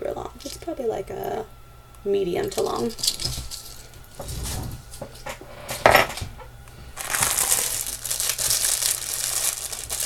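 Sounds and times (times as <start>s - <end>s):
plastic bag crinkling: 7.0s - 10.0s.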